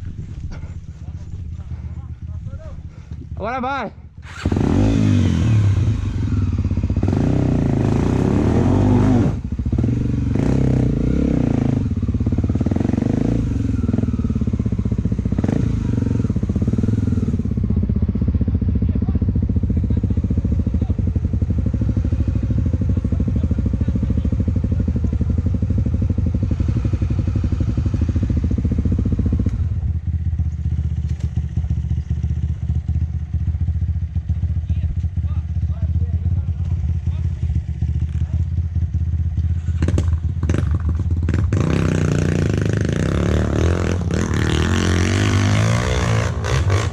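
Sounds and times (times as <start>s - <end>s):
motorcycle engine revving: 4.2s - 46.9s.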